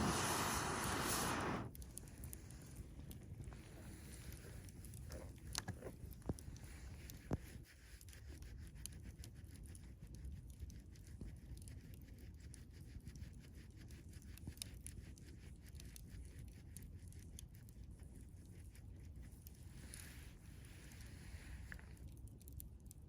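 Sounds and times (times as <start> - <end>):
campfire burning: 0.0 - 7.7, 16.0 - 23.0
fire crackles and pops: 0.0 - 7.7.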